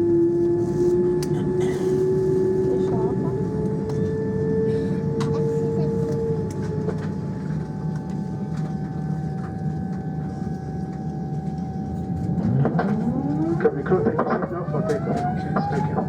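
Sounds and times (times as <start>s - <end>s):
airplane cabin rumble: 0.0s - 16.0s
rising whine: 9.4s - 16.0s.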